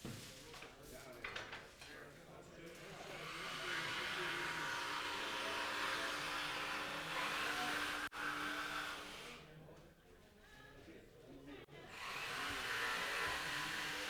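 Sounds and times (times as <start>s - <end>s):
electric jigsaw cutting board: 3.1s - 9.4s, 11.9s - 14.0s.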